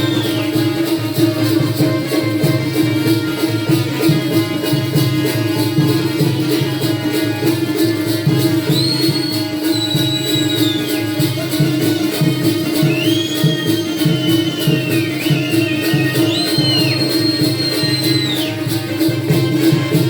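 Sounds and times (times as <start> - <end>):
high whistling line: 0.0 - 0.8, 8.6 - 11.2, 12.8 - 18.7
hand drum beat: 0.0 - 20.0
small cymbals: 0.0 - 20.0.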